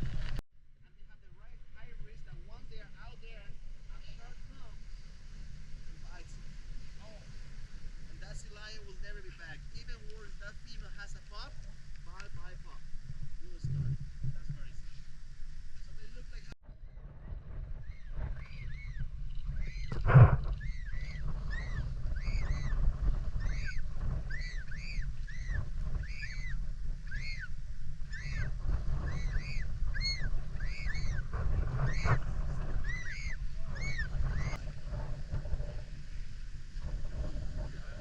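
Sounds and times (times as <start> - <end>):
low wind rumble: 0.0 - 38.0
seabird calling: 14.6 - 38.0.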